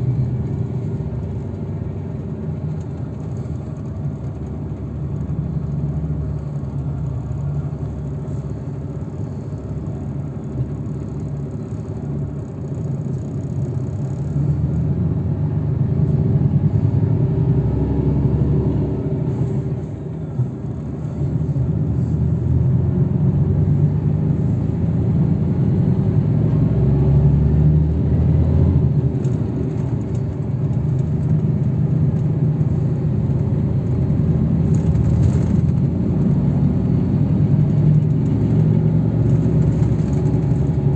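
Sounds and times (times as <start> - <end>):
vehicle engine and tyre rumble: 0.0 - 40.9.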